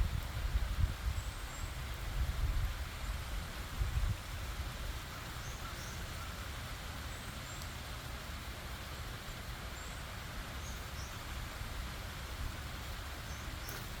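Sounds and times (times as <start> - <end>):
stream and waterfall rushing: 0.0 - 14.0.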